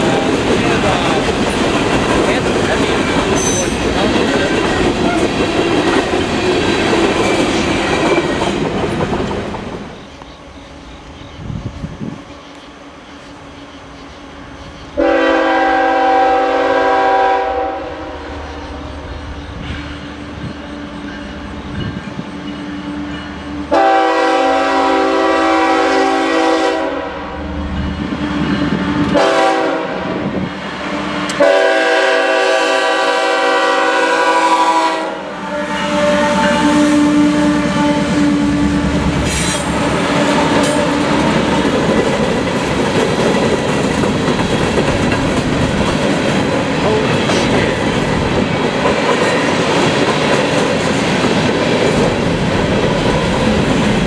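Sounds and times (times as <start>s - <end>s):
train wheels rumbling on rails: 0.0s - 17.4s, 18.0s - 54.0s
locomotive air horn blasts: 15.0s - 18.2s, 23.7s - 27.2s, 29.1s - 30.1s, 31.4s - 41.2s.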